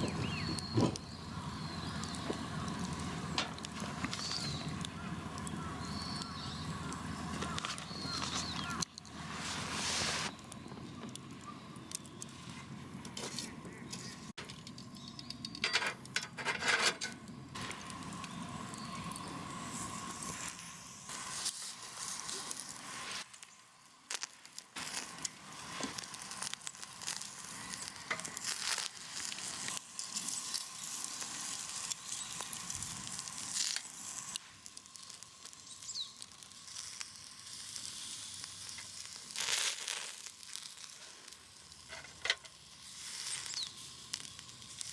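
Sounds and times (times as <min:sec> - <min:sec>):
food sizzling: 0:00.0 - 0:10.4, 0:17.5 - 0:44.9
crinkling rustles of handling: 0:06.9 - 0:15.0.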